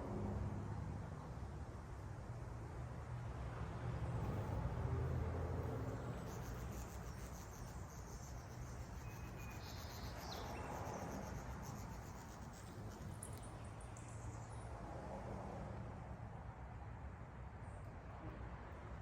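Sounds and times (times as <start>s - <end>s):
birds chirping and trilling: 6.0s - 14.2s.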